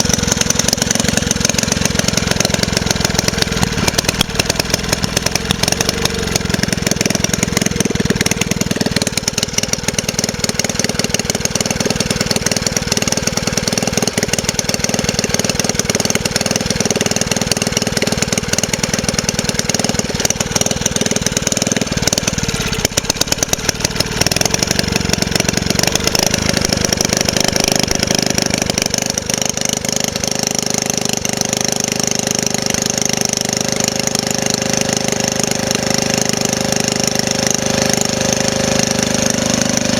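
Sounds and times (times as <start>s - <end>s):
engine running with pulsing beat: 0.0s - 39.9s.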